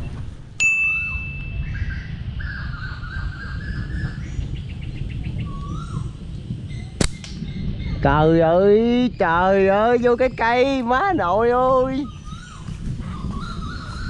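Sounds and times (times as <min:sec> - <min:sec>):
low rumble: 0:00.0 - 0:14.0
birds calling and chirping: 0:00.9 - 0:14.0
sharp click: 0:07.0 - 0:07.4.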